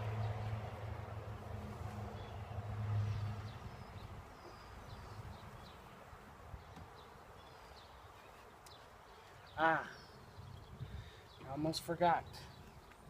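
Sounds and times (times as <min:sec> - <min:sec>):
honeybees buzzing: 0:00.0 - 0:11.5
birds chirping: 0:00.0 - 0:13.0.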